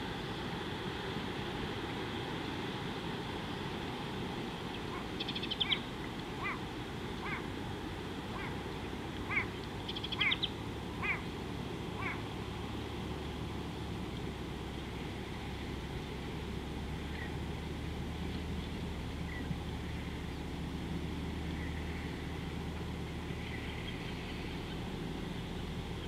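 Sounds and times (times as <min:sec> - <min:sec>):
background hiss: 0:00.0 - 0:26.0
wild bird calls: 0:04.7 - 0:07.6, 0:08.2 - 0:12.5, 0:18.3 - 0:20.5, 0:21.4 - 0:22.4.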